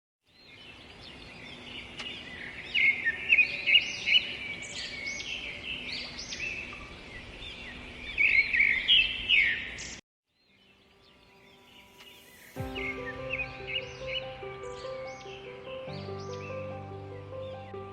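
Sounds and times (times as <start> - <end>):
songbirds chorus: 0.3 - 17.9.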